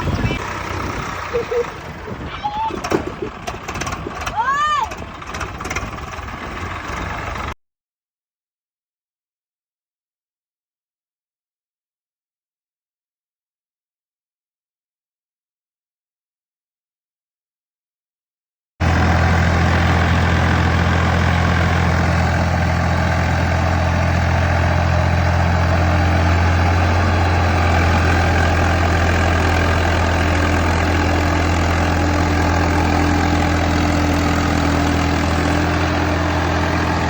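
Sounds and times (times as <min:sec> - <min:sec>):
tractor diesel engine running: 0:00.0 - 0:07.6, 0:18.8 - 0:37.0.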